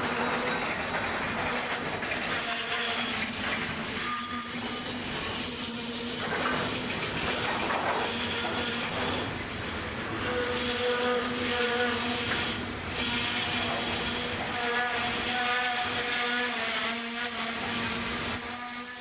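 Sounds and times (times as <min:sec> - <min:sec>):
freight train wagons rolling: 0:00.0 - 0:16.4
train wheels squealing: 0:00.0 - 0:19.0.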